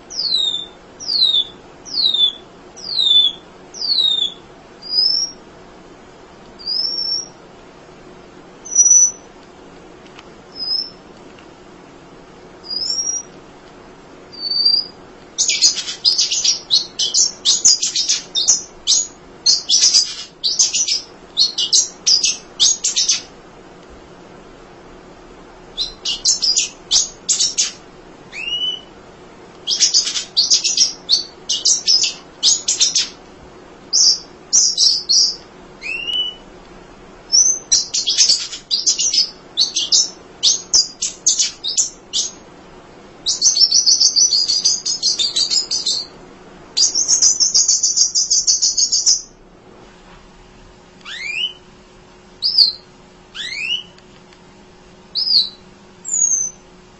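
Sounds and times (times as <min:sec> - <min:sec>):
bird chirping: 0:00.0 - 0:05.4, 0:06.6 - 0:07.4, 0:08.6 - 0:09.3, 0:10.5 - 0:11.0, 0:12.6 - 0:13.3, 0:14.3 - 0:23.3, 0:25.8 - 0:28.9, 0:29.6 - 0:33.2, 0:33.9 - 0:36.4, 0:37.3 - 0:42.4, 0:43.2 - 0:46.1, 0:46.8 - 0:49.4, 0:51.0 - 0:51.6, 0:52.4 - 0:54.0, 0:55.1 - 0:56.6.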